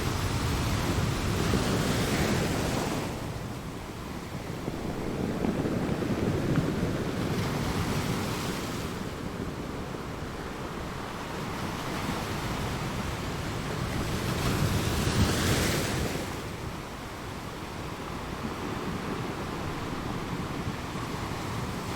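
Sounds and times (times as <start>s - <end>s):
ocean waves crashing: 0.0s - 16.6s
rushing surf: 0.0s - 21.9s.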